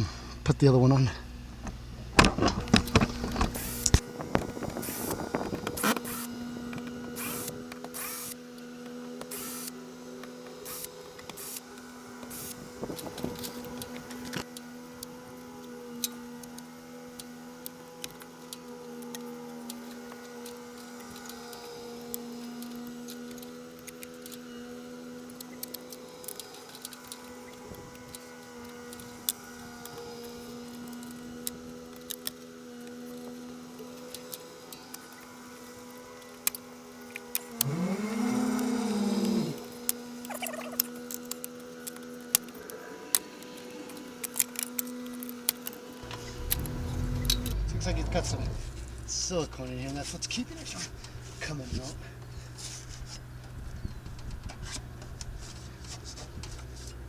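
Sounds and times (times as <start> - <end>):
steady mechanical hum: 0.0 - 57.0
cordless drill running: 1.8 - 9.8.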